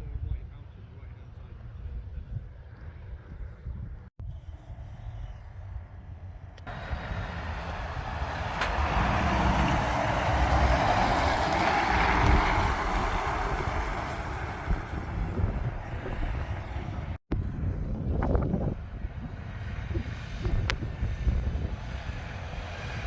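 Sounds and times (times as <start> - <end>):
heavy truck driving past: 6.7 - 17.2.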